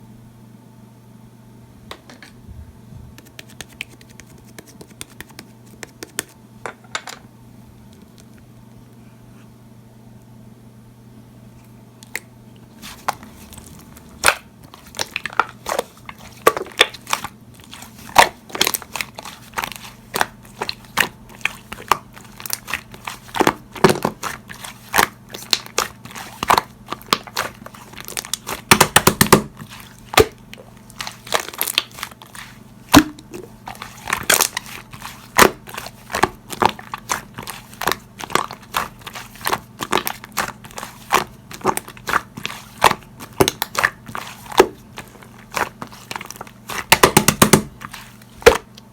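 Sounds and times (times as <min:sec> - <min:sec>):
slime squeezed by hand popping: 0:24.9 - 0:30.4, 0:45.5 - 0:47.8.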